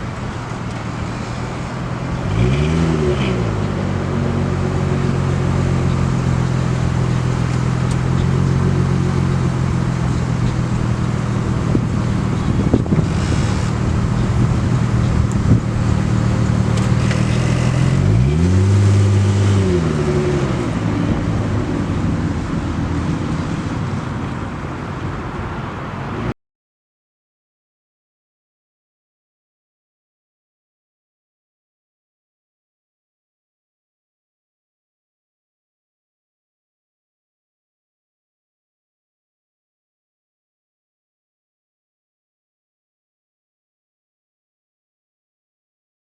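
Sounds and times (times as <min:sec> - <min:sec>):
car engine running and revving: 0:00.0 - 0:26.3.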